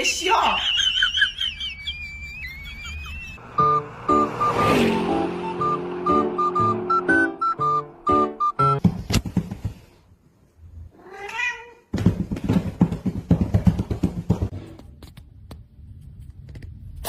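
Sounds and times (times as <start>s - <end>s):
knocks and scuffling: 8.8s - 10.1s, 11.9s - 15.2s
cat meowing: 10.9s - 11.9s.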